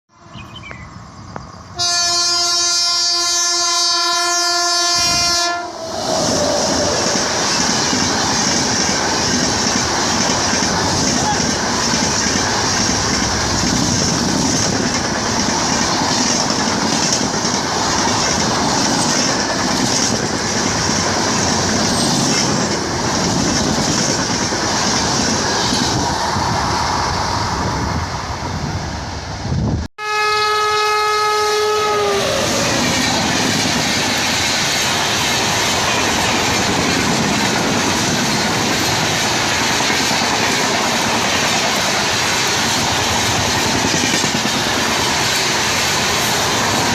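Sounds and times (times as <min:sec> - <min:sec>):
train rumble and wheel clatter: 0:00.2 - 0:29.9, 0:30.5 - 0:46.9
train horn: 0:01.8 - 0:05.9, 0:30.0 - 0:32.9.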